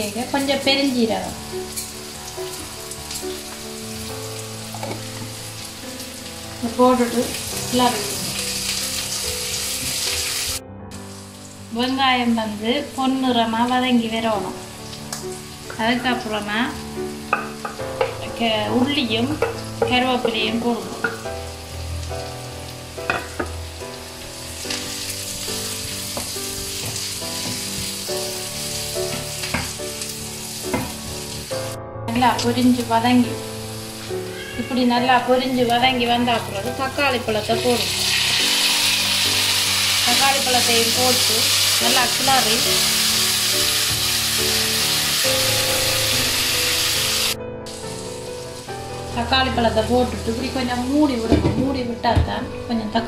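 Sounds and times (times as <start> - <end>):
onions sizzling in hot oil: 0.0 - 51.5
wooden spoon tapping pan: 19.3 - 21.2.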